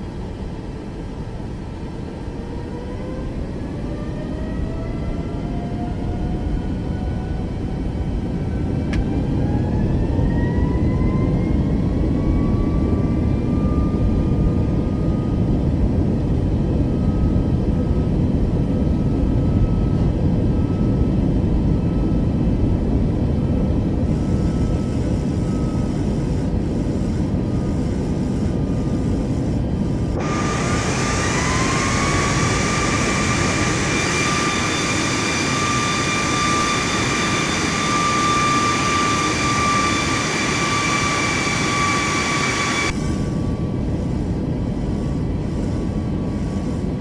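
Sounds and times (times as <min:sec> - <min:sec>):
jet engines roaring: 0:20.8 - 0:47.0.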